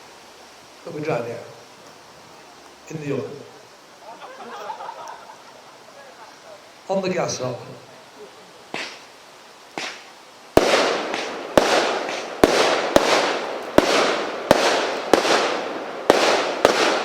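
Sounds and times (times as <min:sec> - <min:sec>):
firework bangs with hiss: 0:04.8 - 0:17.0
small firework pop: 0:08.7 - 0:09.1, 0:09.7 - 0:12.3.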